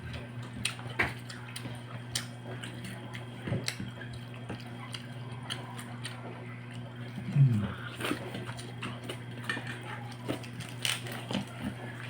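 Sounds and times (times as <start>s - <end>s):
steady low hum: 6.1s - 9.0s.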